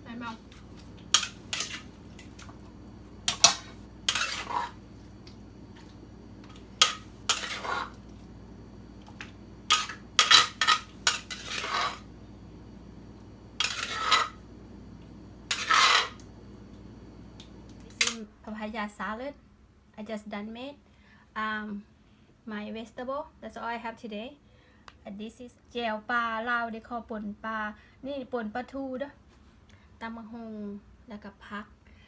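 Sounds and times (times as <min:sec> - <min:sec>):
utensils scraping dishes: 0:00.2 - 0:04.9, 0:05.8 - 0:08.1, 0:09.1 - 0:12.1, 0:13.6 - 0:14.4, 0:15.5 - 0:16.2
utensils clinking against dishes: 0:00.5 - 0:02.6, 0:03.3 - 0:04.8, 0:06.4 - 0:08.0, 0:09.7 - 0:12.0, 0:13.6 - 0:14.4, 0:15.5 - 0:16.2.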